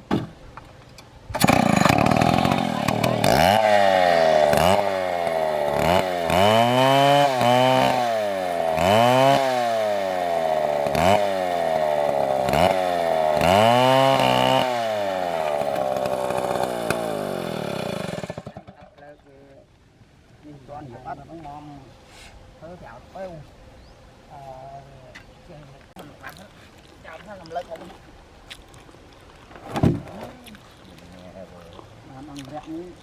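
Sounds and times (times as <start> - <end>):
chainsaw engine revving: 1.3 - 18.8.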